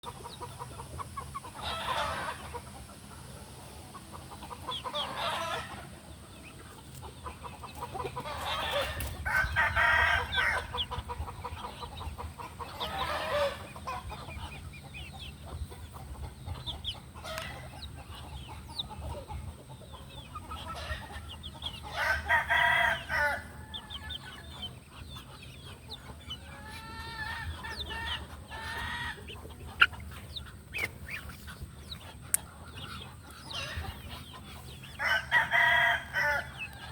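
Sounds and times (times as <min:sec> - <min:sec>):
chickens clucking: 0:00.0 - 0:36.9
roosters crowing: 0:01.4 - 0:02.8, 0:04.4 - 0:06.1, 0:07.8 - 0:14.8, 0:19.9 - 0:24.8, 0:25.4 - 0:30.6, 0:32.9 - 0:36.9.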